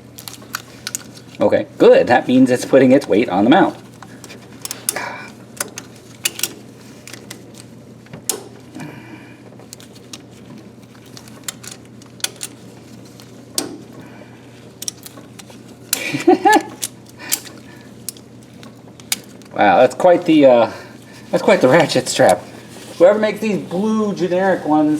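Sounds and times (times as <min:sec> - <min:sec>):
faint steady hum: 0:00.0 - 0:24.9
ratchet strap metal clicks: 0:11.0 - 0:12.6, 0:14.8 - 0:19.5.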